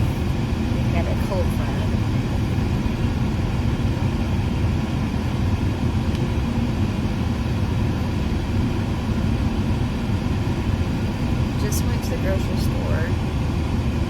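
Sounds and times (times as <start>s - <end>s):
car interior rumble: 0.0s - 14.0s.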